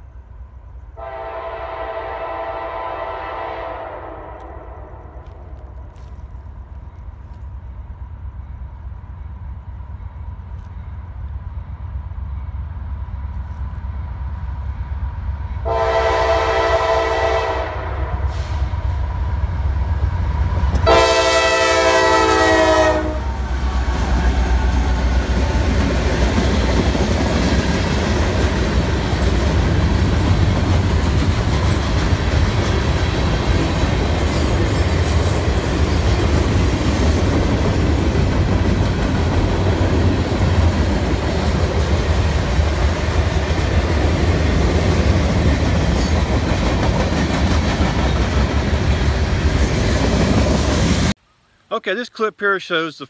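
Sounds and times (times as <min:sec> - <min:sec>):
train horn blasts: 0:01.0 - 0:05.2, 0:15.6 - 0:18.6, 0:20.8 - 0:23.5
train wheels rumbling on rails: 0:04.2 - 0:51.2.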